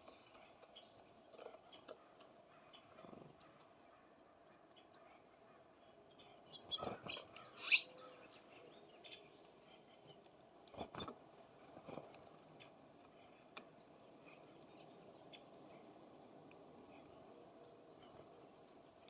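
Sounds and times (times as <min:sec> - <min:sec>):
birds tapping and rustling: 0:00.0 - 0:05.0, 0:06.1 - 0:07.8, 0:09.0 - 0:19.0
short high bird chirp: 0:07.5 - 0:07.9.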